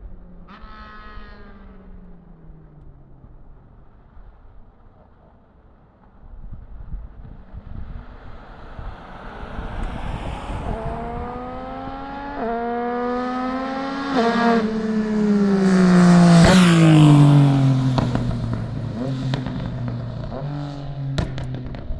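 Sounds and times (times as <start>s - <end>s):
motorcycle engine accelerating: 6.8s - 21.9s.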